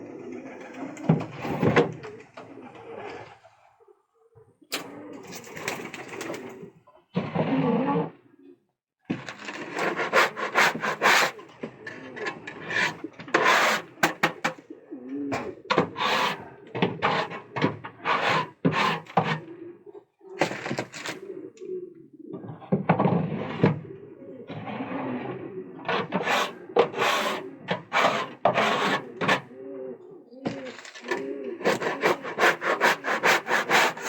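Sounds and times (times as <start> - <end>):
pigeons cooing: 0.0 - 4.0, 10.1 - 34.0
scraping strokes on wood: 9.2 - 11.4, 12.5 - 14.5, 15.4 - 19.4, 24.6 - 29.4, 30.5 - 34.0.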